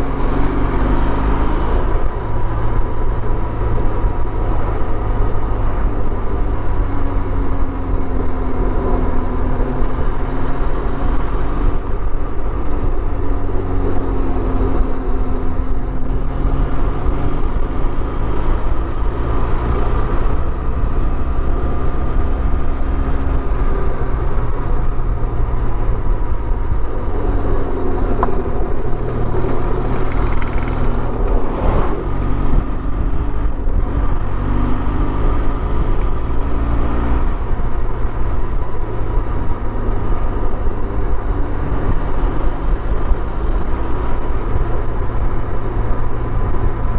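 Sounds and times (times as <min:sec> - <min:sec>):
motorcycle engine running: 0:00.0 - 0:46.9
wind and road noise: 0:00.0 - 0:46.9.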